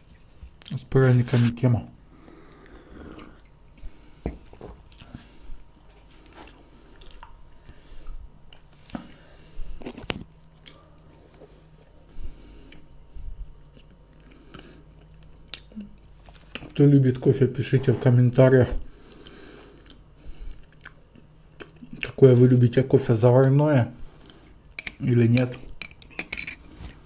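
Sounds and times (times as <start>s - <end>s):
chewing gingerbread: 2.5s - 13.0s, 13.6s - 17.3s, 19.0s - 22.3s.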